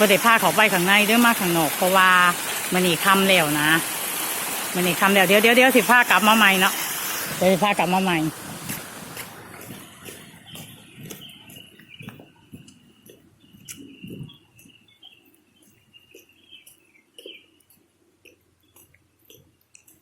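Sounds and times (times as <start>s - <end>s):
soft bumps and clicks: 8.7s - 14.8s
insects chirping: 9.5s - 20.0s.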